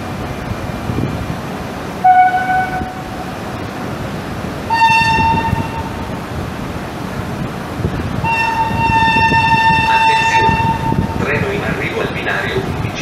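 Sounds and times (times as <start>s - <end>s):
train coaches rumbling past: 0.0s - 13.0s
train horn blasts: 2.0s - 3.4s, 4.7s - 6.1s, 8.2s - 11.2s.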